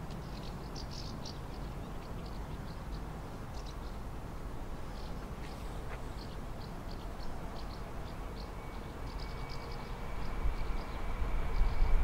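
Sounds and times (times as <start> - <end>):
faint steady whine: 0.0 - 12.0
small birds chirping: 0.1 - 4.1, 4.7 - 11.9
approaching train rumble: 3.9 - 12.0.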